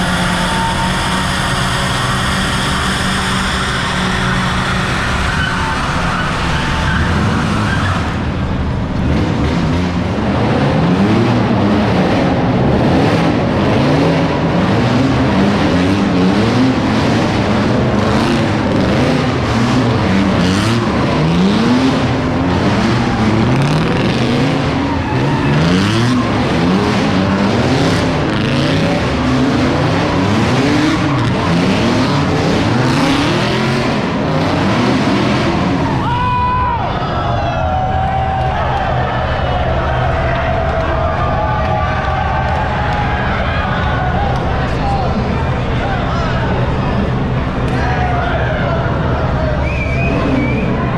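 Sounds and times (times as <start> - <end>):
car engine revving hard: 0.0 - 36.0.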